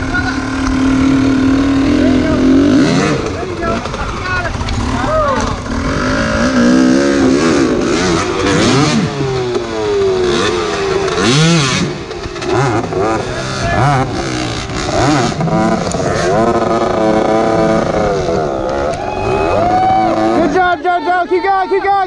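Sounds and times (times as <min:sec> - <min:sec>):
dirt bike engines revving: 0:00.0 - 0:22.0.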